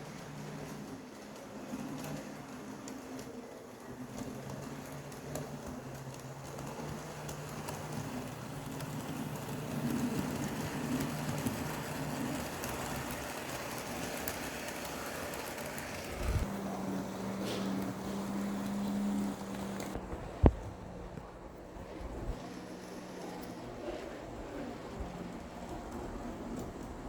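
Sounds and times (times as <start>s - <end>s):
model train motor hum: 0.0s - 27.0s
wheels rattling on track: 0.0s - 27.0s.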